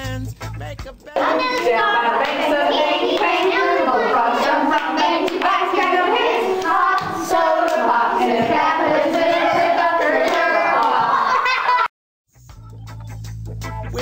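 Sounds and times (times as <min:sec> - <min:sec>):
hand clapping: 0:01.2 - 0:09.4
children singing and talking: 0:01.2 - 0:11.9.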